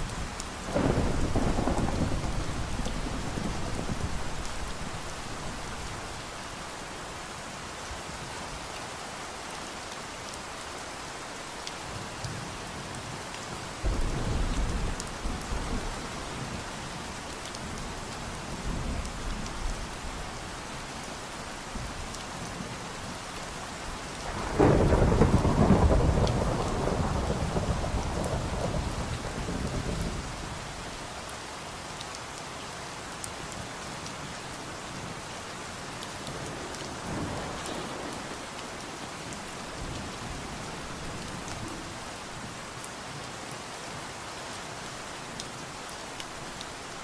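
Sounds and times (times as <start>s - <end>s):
steady rain falling: 0.0s - 47.0s
thunder clap: 0.7s - 4.6s, 24.3s - 30.1s
thunder rumble: 0.7s - 6.2s, 13.8s - 16.4s, 24.3s - 30.4s, 36.4s - 40.5s.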